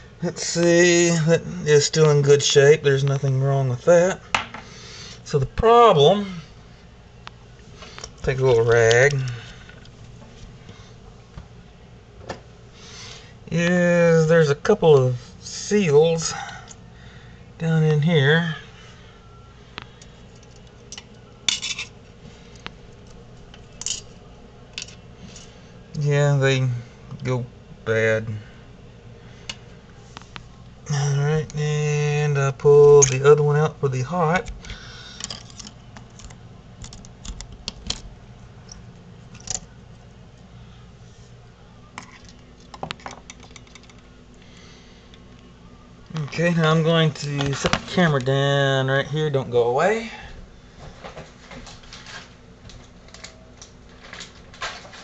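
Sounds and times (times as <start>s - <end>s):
small metal parts clicking: 35.2s - 38.0s.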